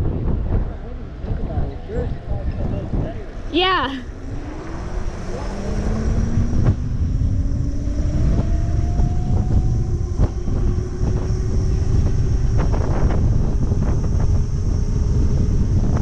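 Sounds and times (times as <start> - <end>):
wind on microphone: 0.0 - 16.0
electric motor whine: 4.0 - 16.0.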